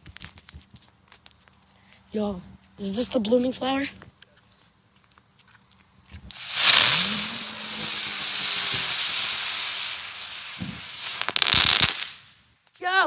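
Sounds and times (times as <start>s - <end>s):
firework spraying sparks hissing: 6.3s - 12.3s.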